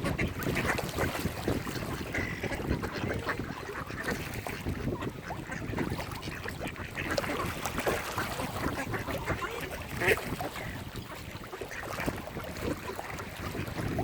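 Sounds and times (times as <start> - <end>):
ducks quacking: 0.0 - 14.0.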